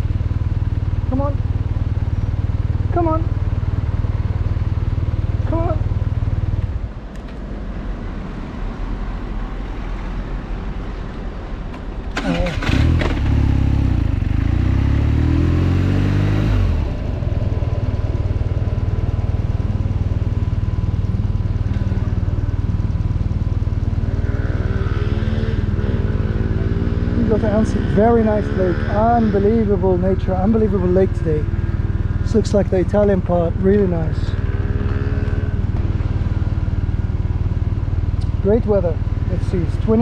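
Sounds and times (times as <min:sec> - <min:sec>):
motorcycle engine revving: 0:12.1 - 0:40.0.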